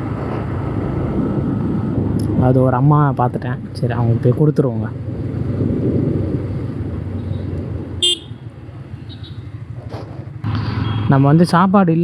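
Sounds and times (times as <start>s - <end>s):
motorcycle riding noise: 0.0s - 12.0s
motorcycle horn toot: 8.0s - 8.4s, 9.1s - 9.4s.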